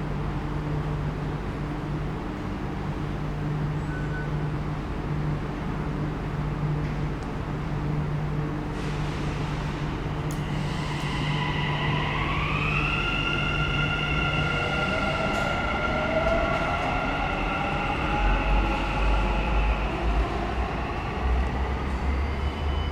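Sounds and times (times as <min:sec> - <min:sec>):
electric train motor whine: 0:10.4 - 0:20.2.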